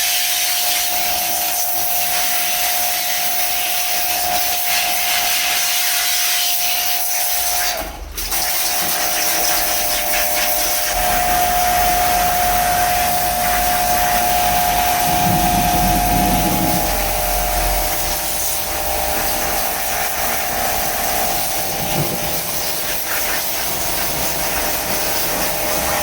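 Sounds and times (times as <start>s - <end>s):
loud hiss: 8.7s - 26.0s
motor whining: 9.7s - 23.1s.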